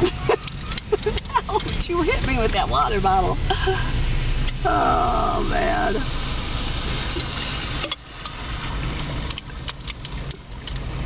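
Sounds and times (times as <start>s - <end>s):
car driving on snowy road: 0.0s - 11.0s.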